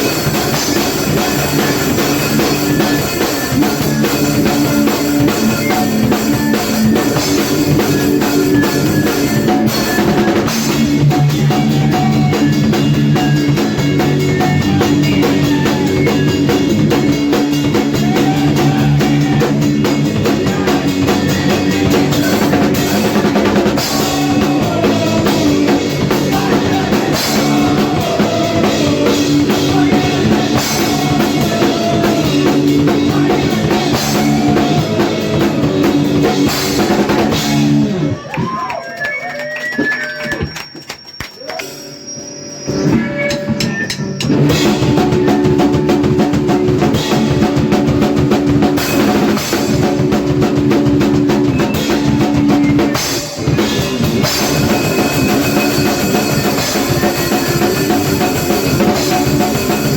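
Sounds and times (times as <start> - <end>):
punk band playing: 0.0 - 59.9
drum kit hits: 42.8 - 59.9.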